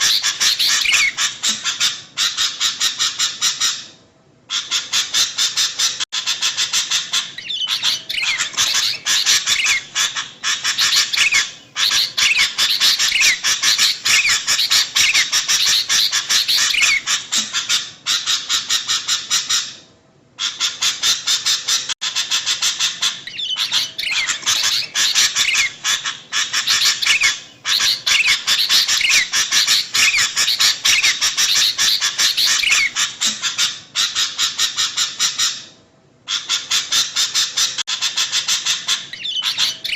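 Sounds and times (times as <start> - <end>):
bulbuls chattering calls: 0.0 - 2.5, 4.9 - 19.0, 21.0 - 35.0.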